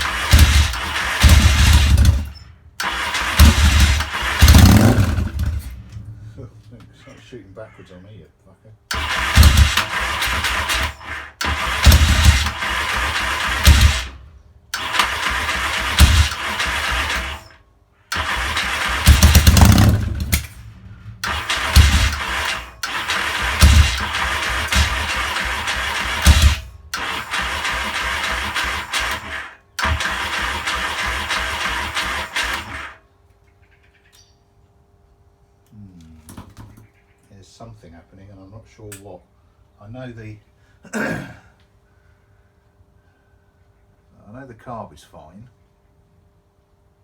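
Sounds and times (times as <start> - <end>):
motorcycle engine cranking: 0.0 - 7.0, 8.9 - 33.0
engine turning over with thuds: 0.0 - 7.2, 8.9 - 33.0.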